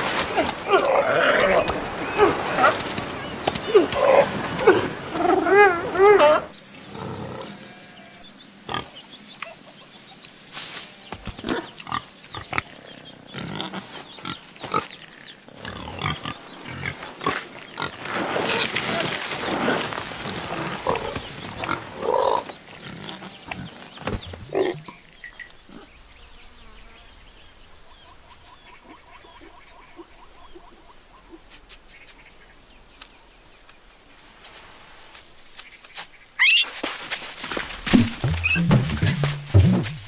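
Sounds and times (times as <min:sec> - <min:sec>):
animal calling: 0:00.0 - 0:08.2, 0:36.4 - 0:40.0.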